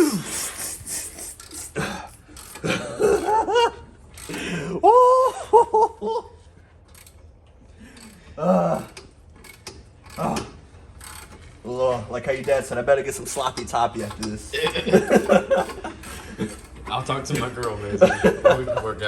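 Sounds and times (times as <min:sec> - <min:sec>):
men laughing: 0:00.0 - 0:06.6, 0:14.4 - 0:16.8, 0:17.4 - 0:19.0.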